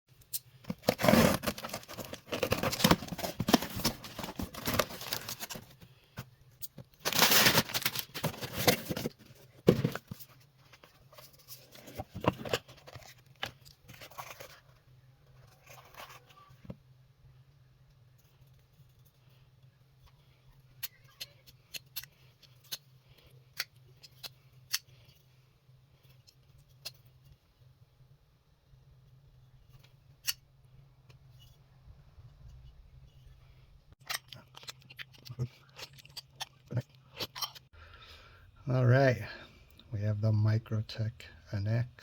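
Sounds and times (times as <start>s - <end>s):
packaging ripping and crinkling: 0.7s - 5.8s, 7.0s - 9.2s.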